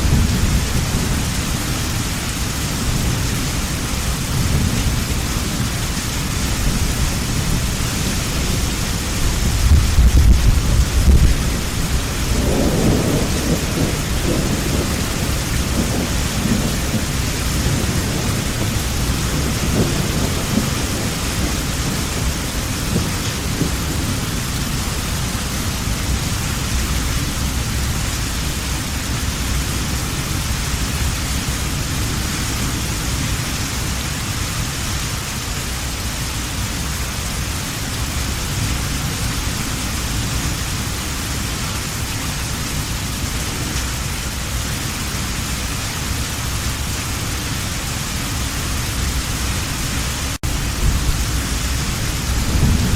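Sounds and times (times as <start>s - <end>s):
thunder rumbling: 0.0s - 34.0s, 38.3s - 52.9s
heavy rain: 0.0s - 52.9s.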